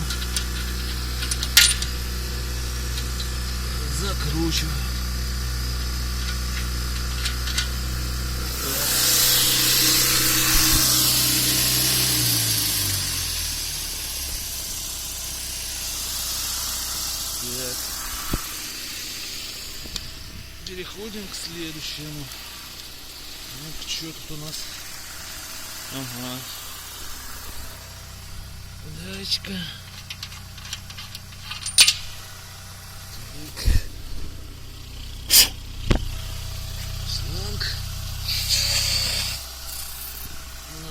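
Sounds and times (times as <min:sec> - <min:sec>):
loud hiss: 0:00.0 - 0:40.9
vehicle engine idling: 0:00.0 - 0:40.9
short hiss: 0:34.8 - 0:37.1, 0:38.1 - 0:40.5.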